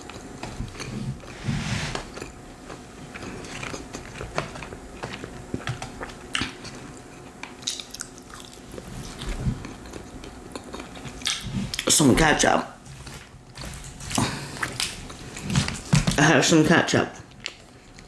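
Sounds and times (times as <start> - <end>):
chewing with mouth clicks: 2.1 - 11.9, 17.3 - 18.0.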